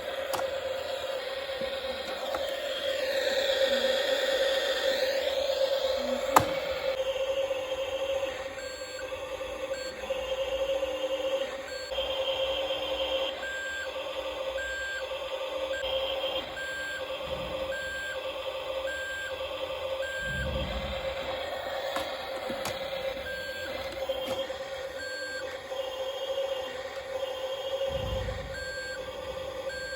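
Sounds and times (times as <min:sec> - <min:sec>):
clicks: 0:00.0 - 0:01.0, 0:21.8 - 0:24.6
toy truck beeper beeping: 0:08.6 - 0:10.3, 0:11.3 - 0:19.4, 0:20.0 - 0:25.6, 0:27.9 - 0:29.9.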